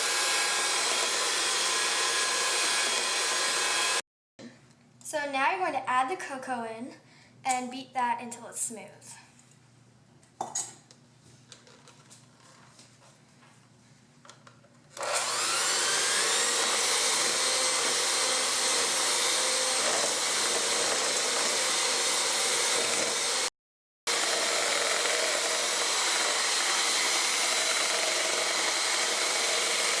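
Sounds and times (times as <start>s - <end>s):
electric mixer motor whine: 0.0s - 4.0s, 15.0s - 23.5s, 24.1s - 30.0s.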